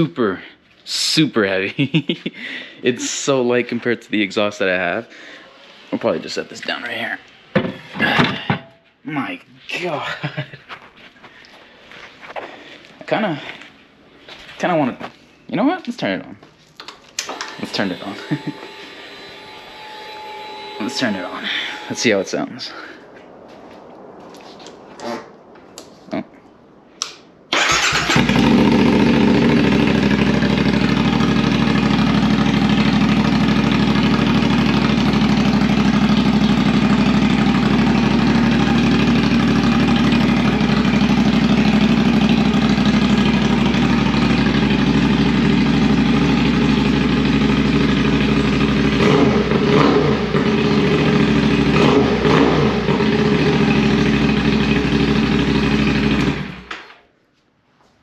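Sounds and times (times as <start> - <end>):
engine throttle blips: 17.2 - 22.7, 27.5 - 56.7
motorcycle engine idling: 27.6 - 56.7.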